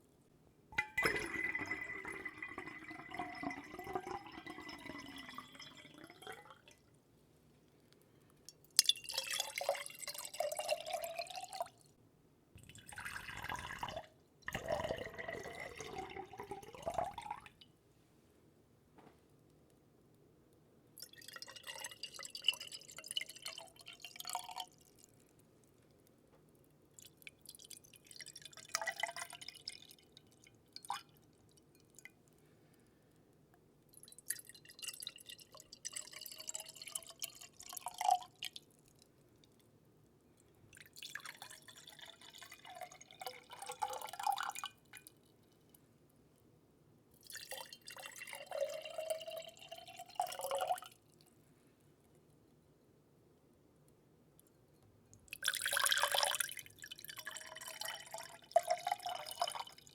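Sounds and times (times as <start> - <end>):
water trickling into a container: 0.8 - 7.0, 8.5 - 12.0, 12.6 - 17.7, 21.0 - 32.8, 33.8 - 39.8, 40.4 - 45.8, 47.1 - 51.3, 55.1 - 59.9.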